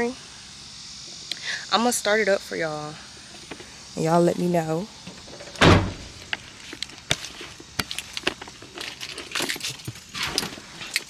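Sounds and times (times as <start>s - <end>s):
heavy thump: 5.1s - 6.4s.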